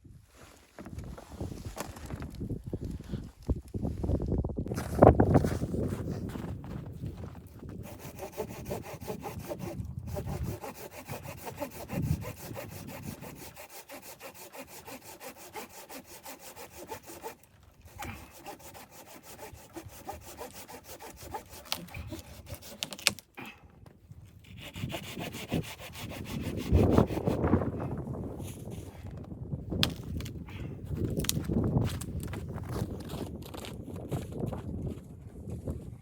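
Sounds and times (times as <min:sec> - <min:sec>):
saw cutting through wood: 0:07.7 - 0:23.2, 0:24.4 - 0:27.8.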